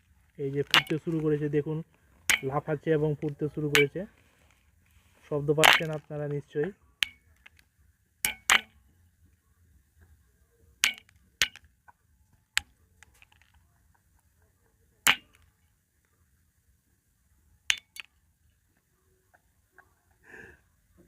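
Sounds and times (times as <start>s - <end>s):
seed pods popping in water: 0.5s - 1.3s, 5.6s - 6.1s, 17.7s - 18.1s.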